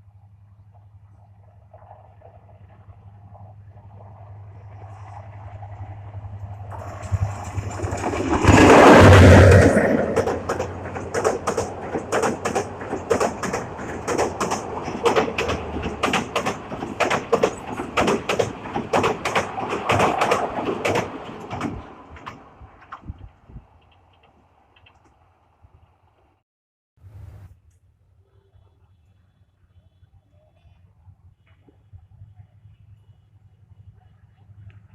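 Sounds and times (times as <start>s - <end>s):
train rushing past: 0.8s - 23.1s
wheel clacks over rail joints: 6.6s - 25.2s.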